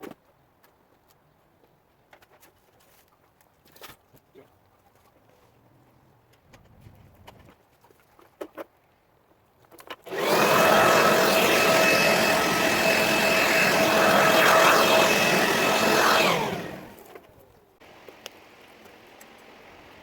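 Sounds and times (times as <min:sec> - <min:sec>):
vacuum cleaner motor whine: 0:10.1 - 0:17.0.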